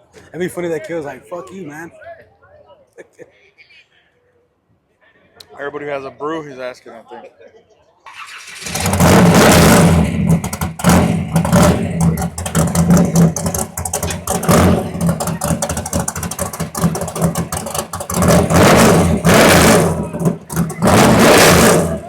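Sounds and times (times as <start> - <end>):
car engine revving with crackle: 8.1 - 22.0.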